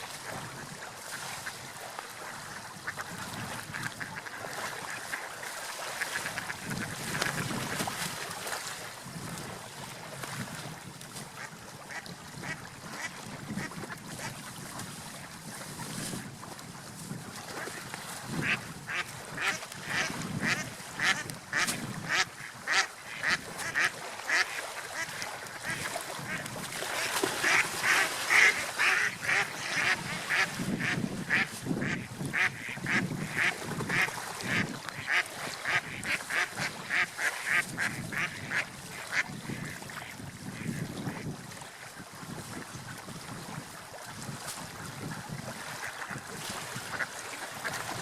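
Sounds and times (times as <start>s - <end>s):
ducks quacking: 0.6s - 7.5s, 11.4s - 14.3s, 18.4s - 41.2s, 46.8s - 47.8s.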